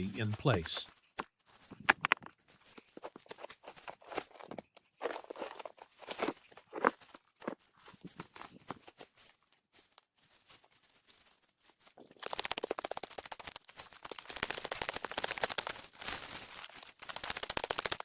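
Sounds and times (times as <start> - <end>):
hand tool scraping stony earth: 2.6 - 8.9.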